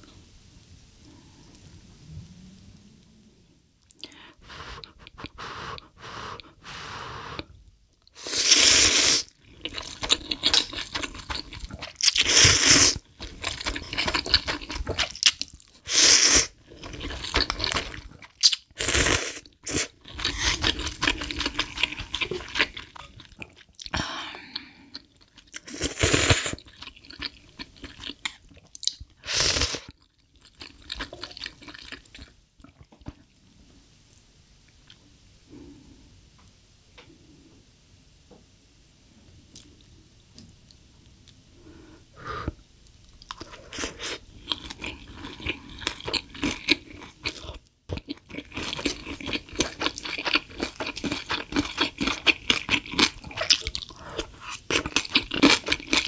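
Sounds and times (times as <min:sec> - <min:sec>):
chewing and crunching: 0:09.3 - 0:15.8, 0:16.5 - 0:18.8, 0:19.4 - 0:24.0, 0:26.6 - 0:29.2, 0:29.8 - 0:33.3, 0:42.8 - 0:56.0.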